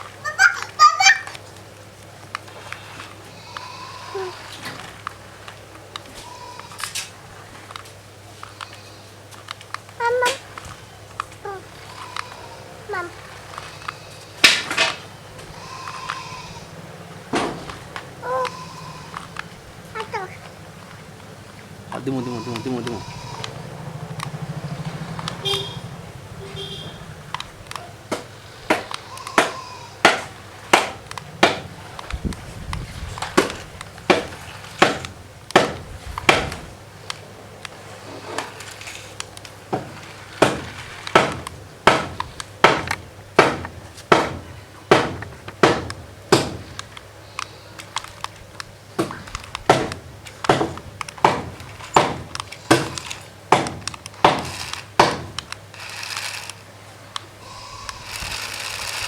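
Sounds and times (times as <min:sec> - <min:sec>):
hard object knocking: 0:49.0 - 0:55.9.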